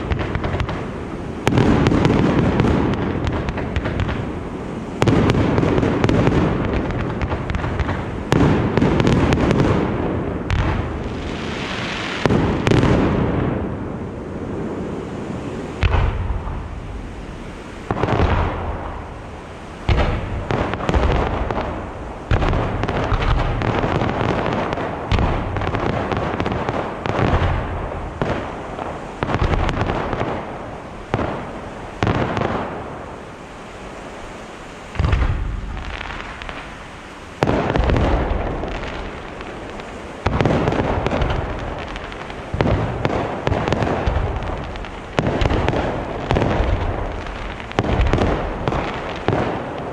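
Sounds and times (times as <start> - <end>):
fireworks bursting: 0.0 - 49.9.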